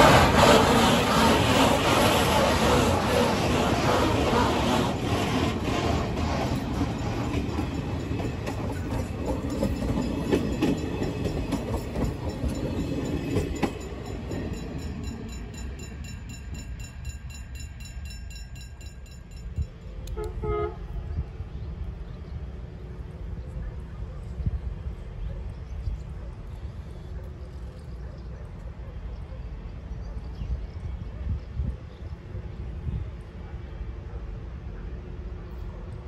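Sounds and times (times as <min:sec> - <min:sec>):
freight train rumbling: 0:00.0 - 0:36.0
short train toot: 0:20.0 - 0:21.1.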